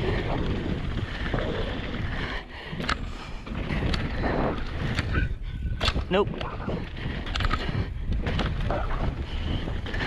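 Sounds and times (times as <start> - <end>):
bike tyres on dirt: 0.0 - 10.0
wind rushing over camera: 0.0 - 10.0
bike knocks and rattles: 2.8 - 10.0.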